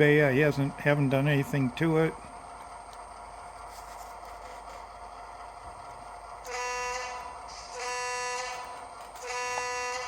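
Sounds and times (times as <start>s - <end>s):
locomotive engine idling: 0.0s - 10.0s
locomotive horn blasts: 6.4s - 10.0s.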